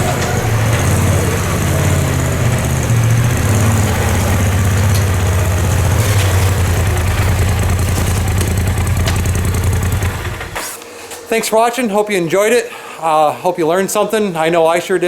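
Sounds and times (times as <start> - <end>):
off-road vehicle engine idling: 0.0 - 10.7.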